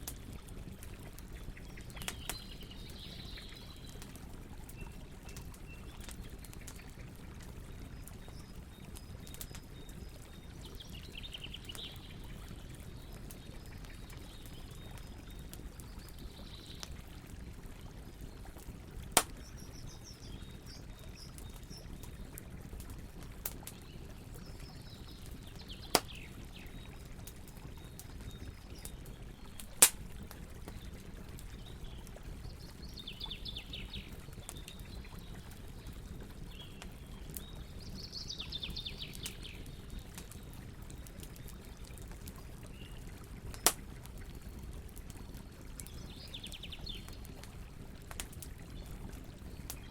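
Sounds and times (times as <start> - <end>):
campfire hissing: 18.8 - 20.5, 27.3 - 31.6.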